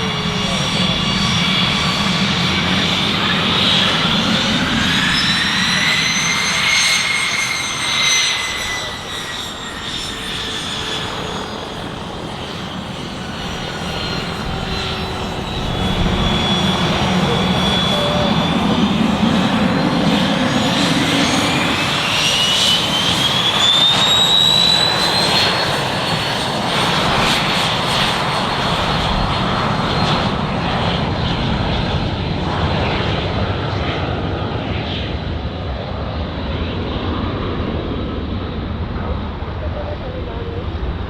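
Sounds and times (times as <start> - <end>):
aircraft turbine engines whining: 0.0 - 41.0.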